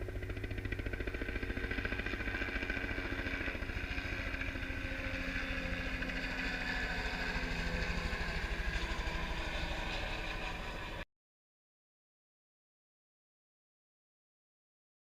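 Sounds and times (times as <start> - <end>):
helicopter rotor beat: 0.0 - 11.0
turbine whine: 0.0 - 11.0.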